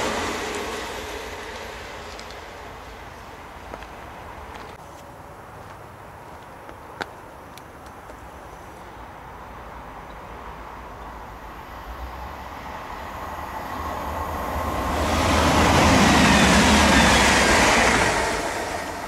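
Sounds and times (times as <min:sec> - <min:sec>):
train rumbling past: 0:00.0 - 0:04.8, 0:10.3 - 0:19.0.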